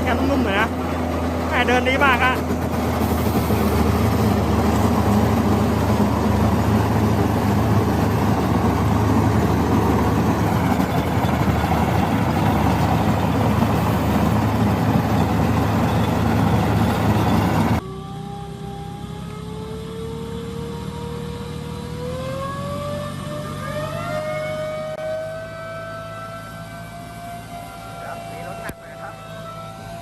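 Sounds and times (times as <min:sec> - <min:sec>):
tractor engine running: 0:00.0 - 0:22.0
engine rising in pitch: 0:00.0 - 0:30.0.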